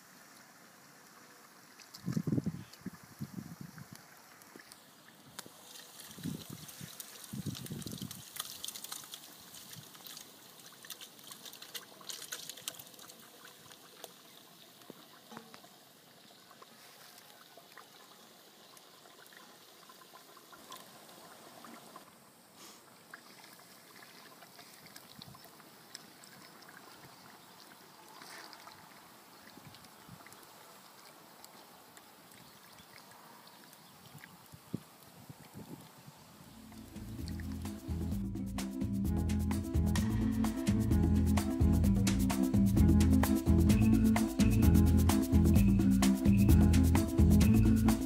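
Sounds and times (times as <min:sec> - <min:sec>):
pot simmering: 0:36.5 - 0:38.3.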